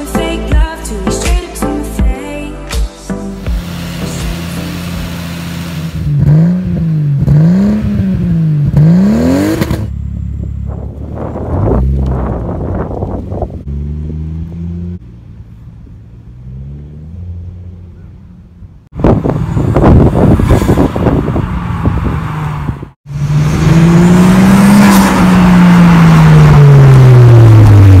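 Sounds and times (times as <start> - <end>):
car engine accelerating past: 19.3 - 28.0.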